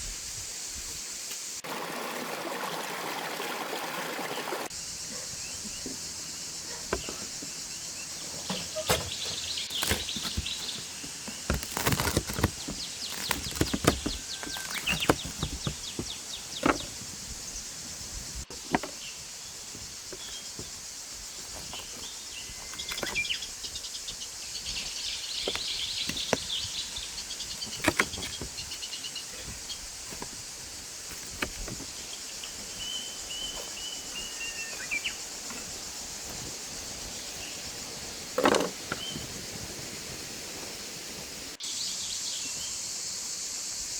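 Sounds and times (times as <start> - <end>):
steady high hiss: 0.0 - 1.8, 4.6 - 43.9
birds chirping and calling: 4.8 - 40.2
sharp clicks and knocks: 8.4 - 17.1, 27.4 - 28.8.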